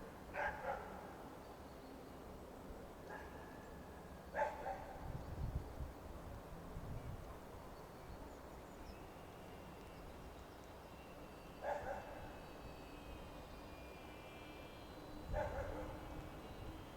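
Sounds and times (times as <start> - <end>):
dog barking: 0.4 - 1.0, 4.4 - 4.9, 11.6 - 12.1, 15.4 - 15.9.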